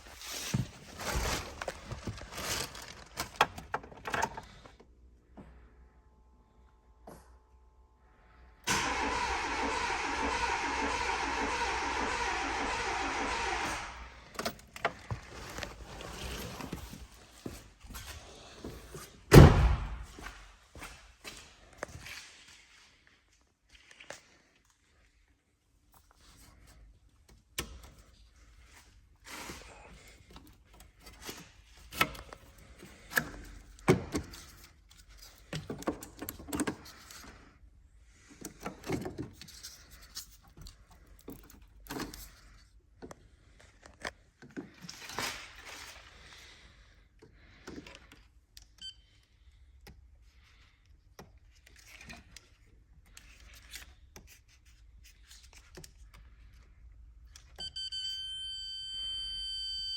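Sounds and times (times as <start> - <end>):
hands handling tools and parts: 14.2 - 19.3, 25.9 - 48.8, 49.8 - 57.7.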